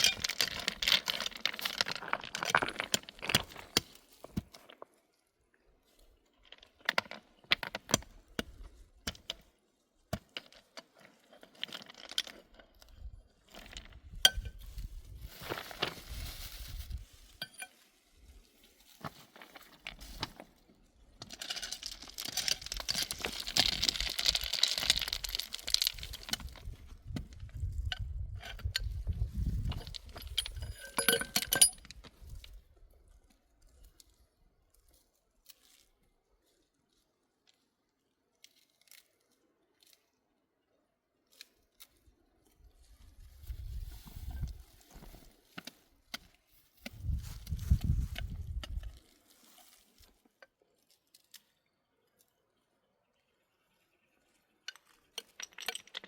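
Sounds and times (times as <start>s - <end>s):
small objects clinking and knocking: 0.0s - 4.8s, 10.1s - 17.9s, 21.0s - 32.5s, 54.6s - 56.0s.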